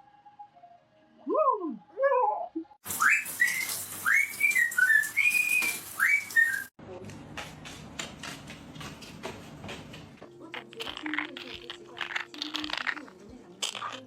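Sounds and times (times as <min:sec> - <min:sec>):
parrot whistling: 0:02.9 - 0:06.7.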